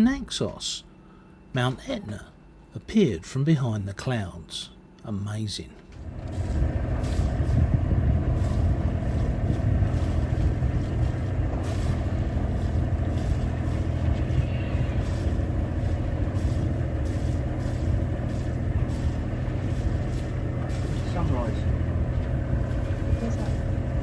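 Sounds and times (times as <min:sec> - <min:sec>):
boat engine humming: 0:05.8 - 0:24.0
water noise: 0:06.0 - 0:24.0
wind noise: 0:06.0 - 0:24.0.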